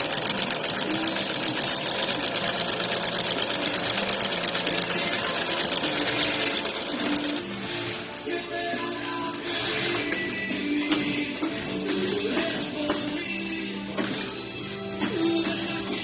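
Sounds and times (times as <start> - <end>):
sewing machine stitching rattle: 0.0 - 7.7.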